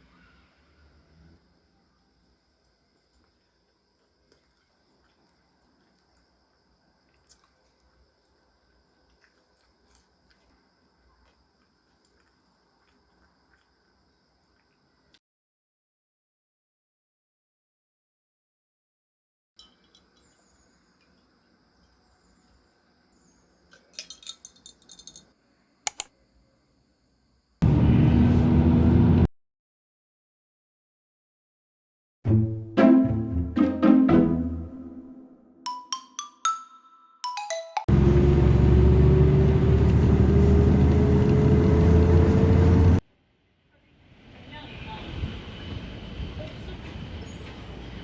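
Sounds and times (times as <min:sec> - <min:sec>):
small hard objects clinking: 0:23.8 - 0:25.3
sharp clicks: 0:25.9 - 0:26.1
mallet instrument music: 0:32.3 - 0:37.9.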